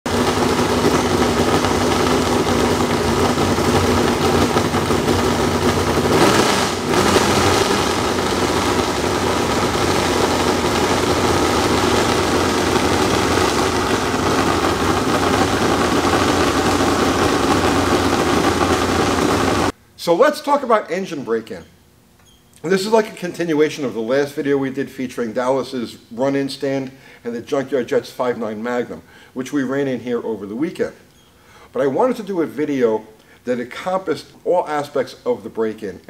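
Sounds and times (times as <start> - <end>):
engine running steadily: 0.1 - 19.7.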